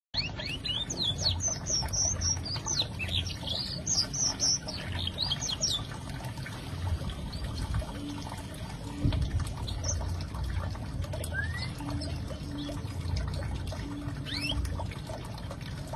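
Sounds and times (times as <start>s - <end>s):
canary singing: 0.2s - 5.9s.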